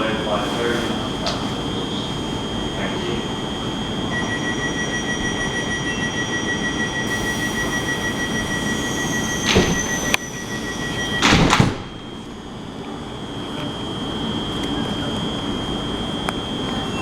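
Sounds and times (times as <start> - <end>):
high electrical tone: 2.8 - 17.0
train sliding doors closing: 7.1 - 12.8.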